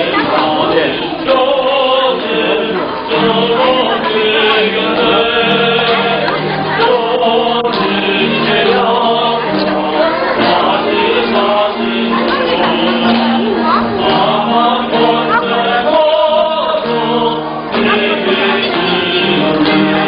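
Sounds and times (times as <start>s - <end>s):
group singing a praise song: 0.0s - 20.0s.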